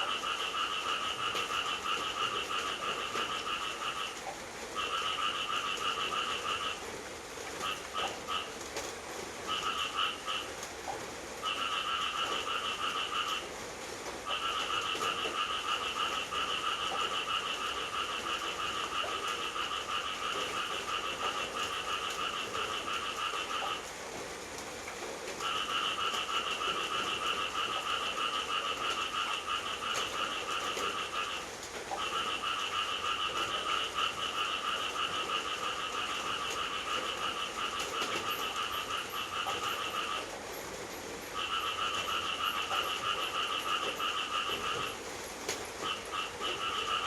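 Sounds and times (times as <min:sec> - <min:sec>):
frog trilling: 0:00.0 - 0:04.2, 0:04.8 - 0:06.8, 0:14.3 - 0:23.9, 0:25.4 - 0:40.3, 0:41.4 - 0:45.0, 0:45.8 - 0:47.0
rain hissing: 0:00.0 - 0:47.0
frog calling in pulsed trills: 0:41.3 - 0:45.0.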